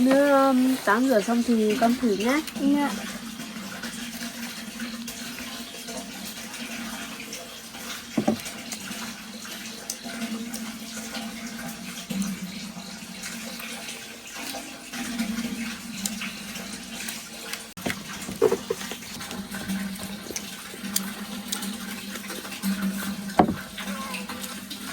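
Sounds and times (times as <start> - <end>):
water running and splashing: 0.0 - 24.9
sharp knocks: 8.2 - 8.4, 23.4 - 23.7.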